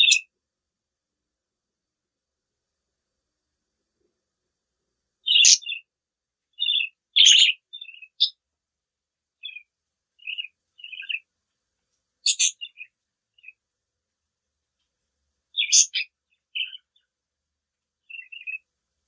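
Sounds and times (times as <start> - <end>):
budgerigars chirping: 0.0 - 0.3, 5.2 - 5.9, 6.6 - 8.4, 9.4 - 11.3, 12.2 - 13.6, 15.6 - 17.1, 18.0 - 18.7.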